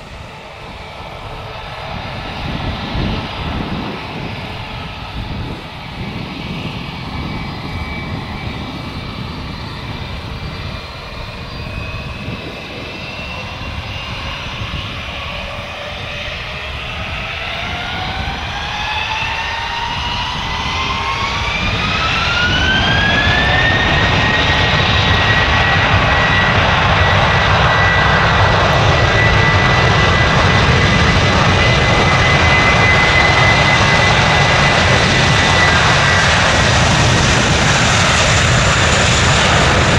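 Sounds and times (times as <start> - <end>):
jet engines spooling up: 0.0 - 39.9.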